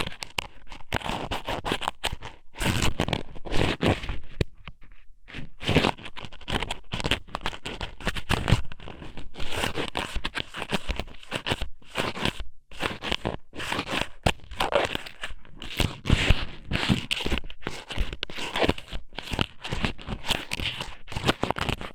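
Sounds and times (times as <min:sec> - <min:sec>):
scratching and crackling on microphone: 0:00.0 - 0:21.9.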